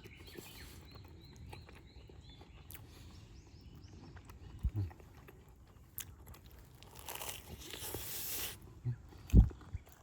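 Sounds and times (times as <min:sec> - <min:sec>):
small birds singing: 0:00.0 - 0:10.0.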